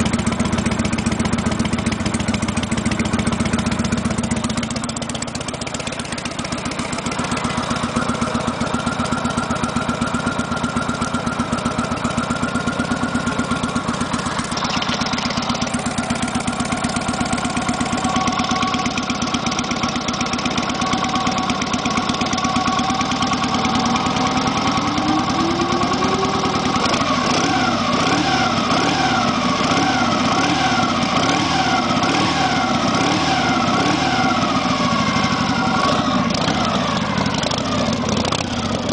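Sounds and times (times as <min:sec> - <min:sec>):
motorcycle engine idling: 0:00.0 - 0:38.9
wailing siren: 0:22.8 - 0:30.1.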